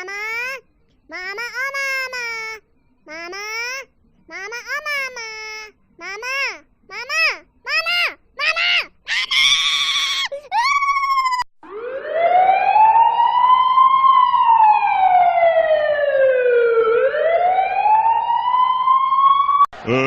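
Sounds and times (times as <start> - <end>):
siren-like wailing tone: 11.6 - 19.7.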